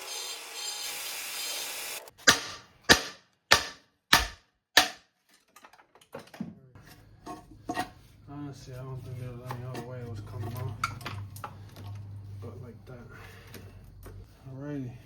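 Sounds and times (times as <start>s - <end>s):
sharp metal blows: 2.2s - 5.0s.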